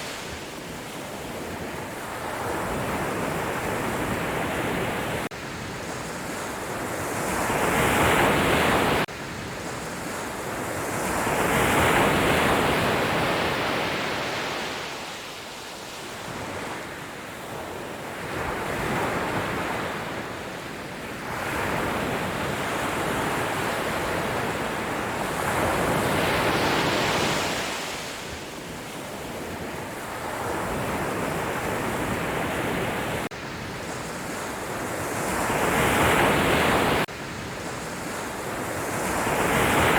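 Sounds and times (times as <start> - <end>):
sea waves breaking: 21.3 - 39.9.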